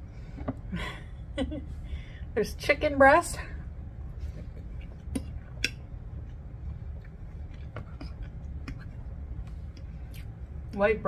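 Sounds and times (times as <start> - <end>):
low steady hum: 0.0 - 11.0
chewing soft food: 4.1 - 10.8.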